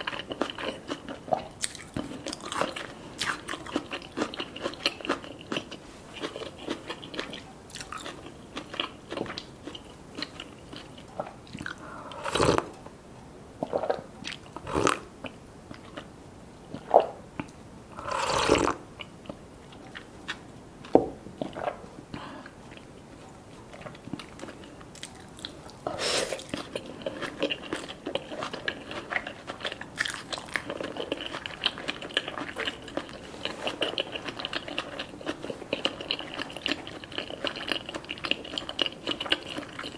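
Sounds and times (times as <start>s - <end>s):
person chewing: 0.0s - 12.9s, 13.6s - 16.1s, 16.7s - 39.9s.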